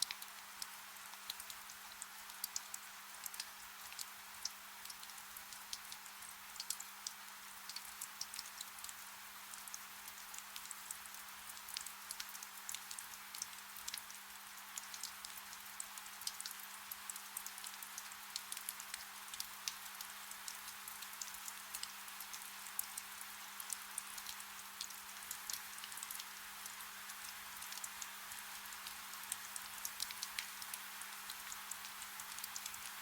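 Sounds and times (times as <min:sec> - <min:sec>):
soft rain hiss: 0:00.0 - 0:33.0
raindrops ticking: 0:28.8 - 0:33.0.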